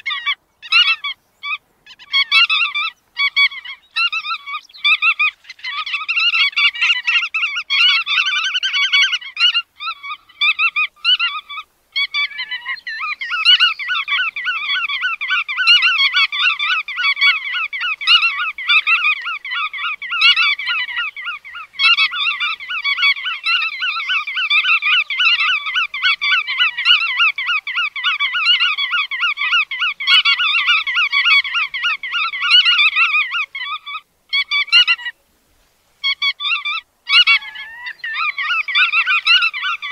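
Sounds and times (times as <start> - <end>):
birds honking calls: 0.0 - 35.2, 36.0 - 39.9.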